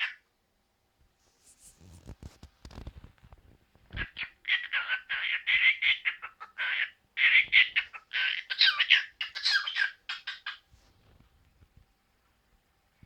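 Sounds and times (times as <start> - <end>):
parrot chattering and squawking: 0.0 - 0.2, 4.0 - 10.6.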